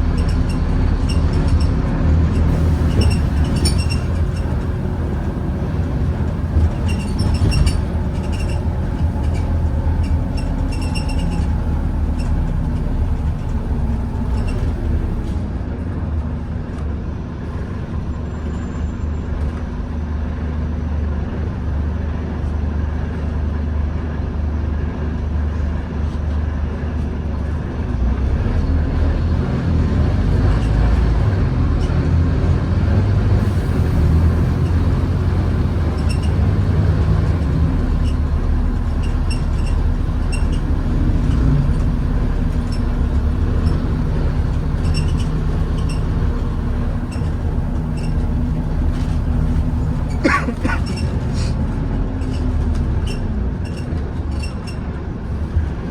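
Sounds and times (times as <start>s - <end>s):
bus engine drone: 0.0s - 55.9s
short high squeal: 6.5s - 15.2s.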